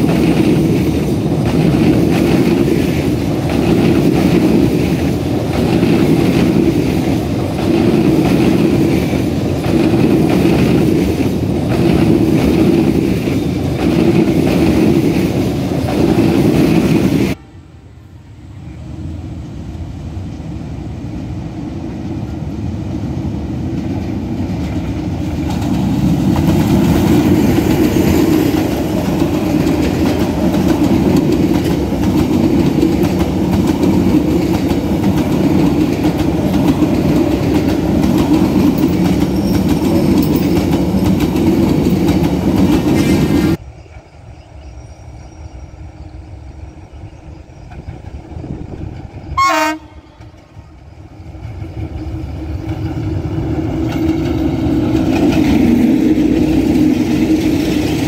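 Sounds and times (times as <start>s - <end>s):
train rumbling past: 0.0s - 58.0s
train horn blast: 17.3s - 18.8s, 49.3s - 50.6s.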